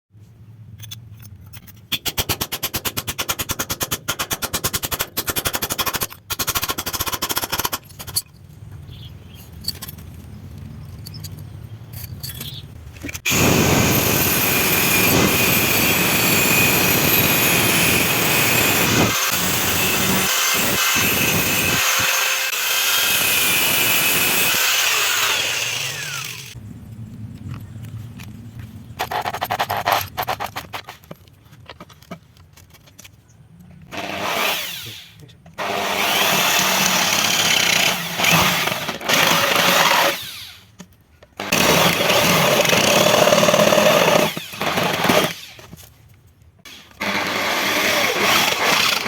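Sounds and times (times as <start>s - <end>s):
power tool whining: 13.3s - 26.6s, 33.9s - 40.6s, 41.4s - 45.7s, 46.7s - 49.0s.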